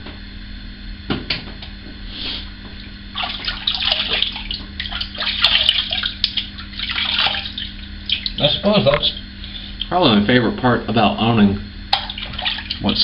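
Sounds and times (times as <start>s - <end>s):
water running from sink tap: 3.1s - 8.9s, 11.9s - 13.0s.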